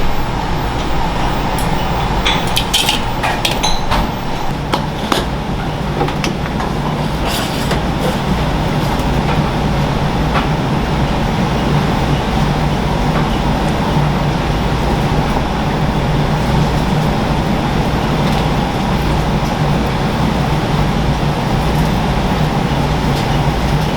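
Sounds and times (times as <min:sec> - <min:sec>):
low kitchen hum: 0:00.0 - 0:23.9
dishes and utensils clinking: 0:00.7 - 0:08.3.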